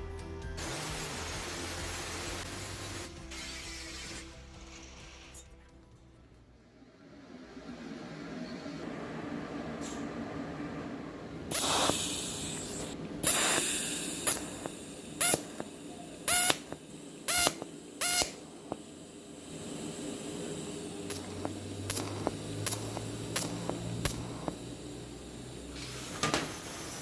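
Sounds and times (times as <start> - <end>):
aerosol spray can hissing: 0.6 - 5.3, 11.5 - 27.0.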